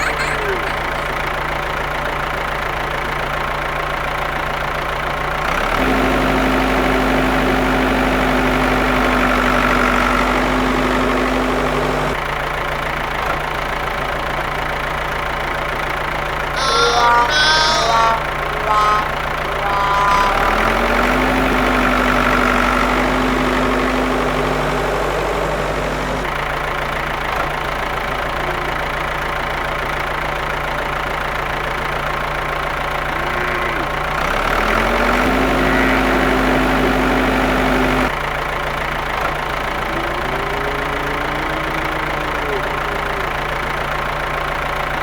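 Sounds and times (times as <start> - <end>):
background hum: 16.6 - 26.3.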